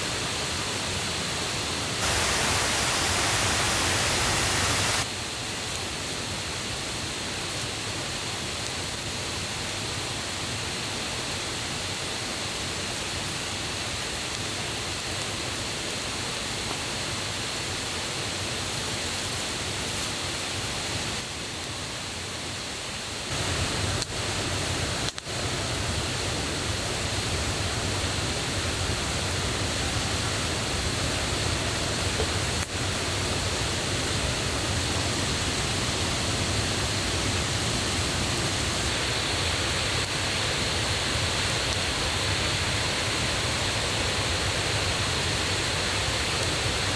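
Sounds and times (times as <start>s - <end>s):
rushing mountain river and waterfall: 0.0s - 5.1s, 19.5s - 46.9s.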